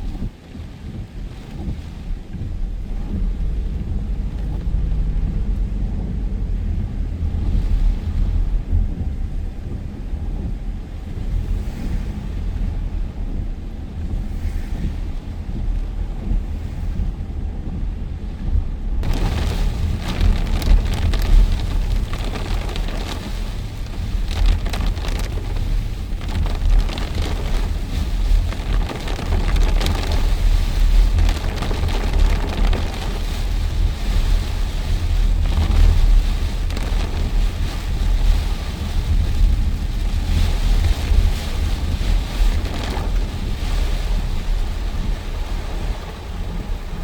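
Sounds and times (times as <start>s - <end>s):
deep rumble: 0.0s - 47.0s
heavy rain: 0.0s - 47.0s.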